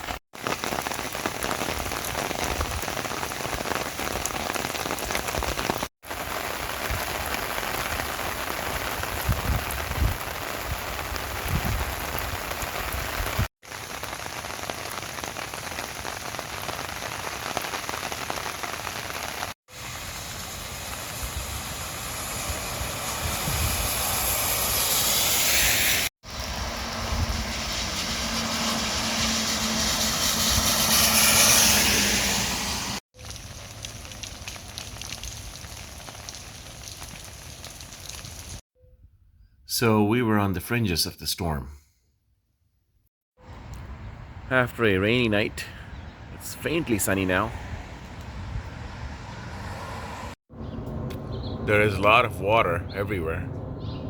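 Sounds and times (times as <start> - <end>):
steady rain falling: 0.0 - 24.8, 33.2 - 38.6.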